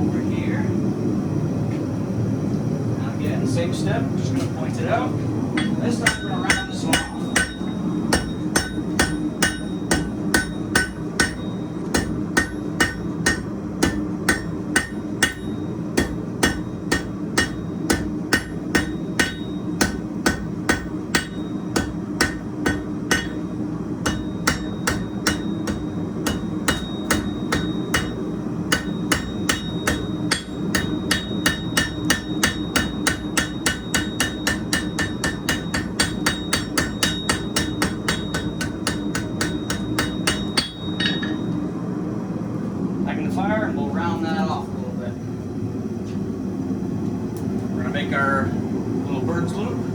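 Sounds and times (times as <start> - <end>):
gas forge roar: 3.0 - 49.9
hammer striking steel on anvil: 5.6 - 41.6.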